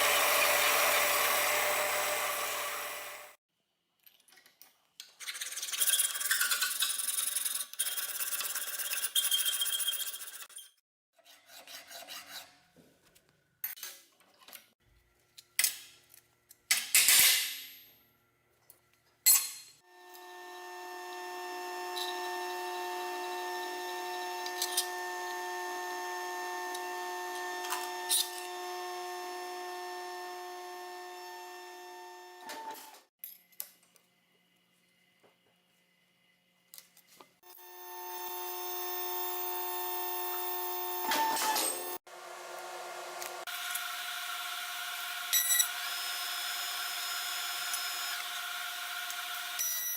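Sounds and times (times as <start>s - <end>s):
welding arc buzzing: 37.5s - 42.0s.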